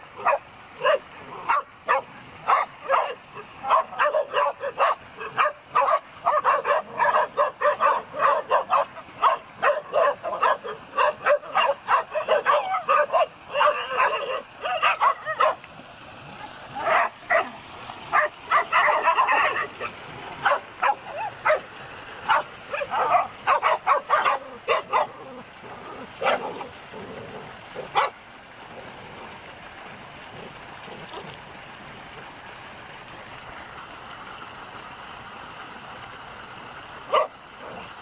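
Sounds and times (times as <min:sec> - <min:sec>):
dogs barking excitedly: 0:00.0 - 0:15.7, 0:16.3 - 0:28.2, 0:37.1 - 0:38.0.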